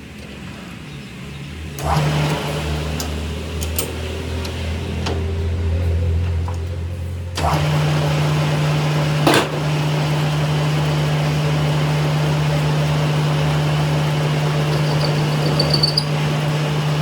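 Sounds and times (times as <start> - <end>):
machine humming: 9.8 - 17.0.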